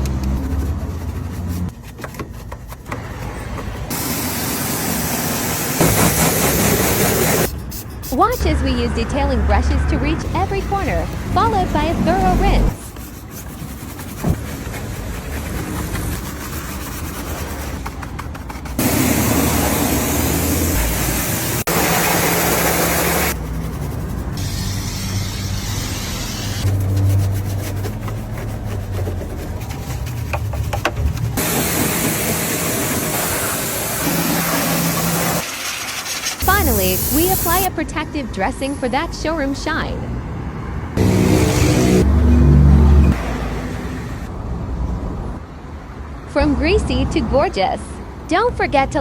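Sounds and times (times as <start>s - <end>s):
cleaning spray hissing: 3.9s - 9.4s, 18.8s - 23.4s, 24.4s - 26.7s, 31.4s - 37.7s.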